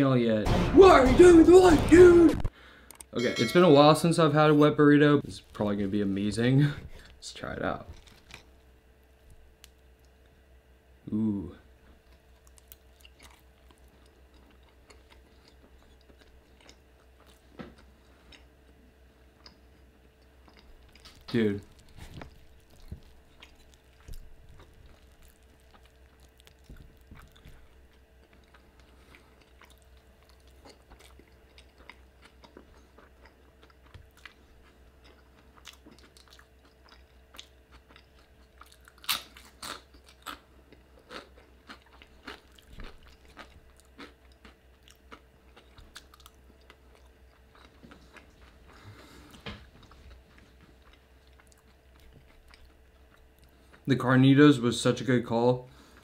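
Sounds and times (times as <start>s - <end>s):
faint steady hum: 0.0s - 56.0s
wet chewing mouth sounds: 12.0s - 18.6s, 20.2s - 53.9s.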